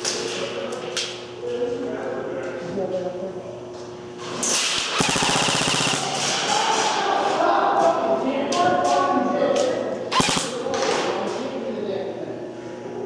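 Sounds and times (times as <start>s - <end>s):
sharp single shots: 4.8s - 6.2s
airsoft gun rapid burst: 4.8s - 6.3s, 10.1s - 10.5s
voices shouting: 6.0s - 7.8s.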